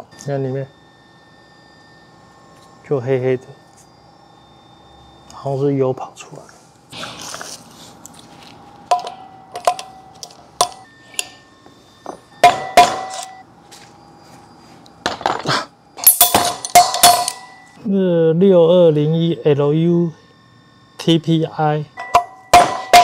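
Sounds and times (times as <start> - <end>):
metal tools clinking: 8.9 - 11.4, 16.0 - 17.8
metal clanks: 16.0 - 17.6.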